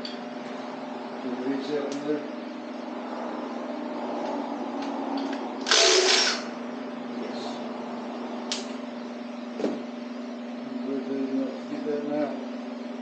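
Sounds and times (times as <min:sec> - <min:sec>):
steady low hum: 0:00.0 - 0:13.0
power tool burst: 0:05.6 - 0:06.5.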